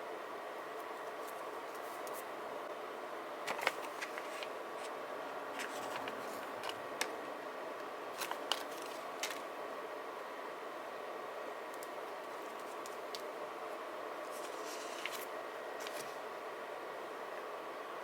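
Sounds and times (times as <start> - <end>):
paper handling clicks and taps: 3.5 - 5.0, 5.6 - 7.2, 8.2 - 9.5, 11.7 - 13.3, 14.3 - 16.1
steady hiss: 12.1 - 16.3.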